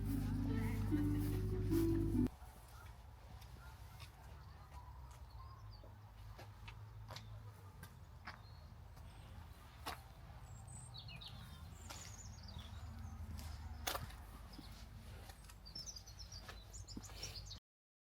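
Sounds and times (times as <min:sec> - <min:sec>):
low outdoor rumble: 0:00.0 - 0:02.3
small birds chirping: 0:07.1 - 0:17.6.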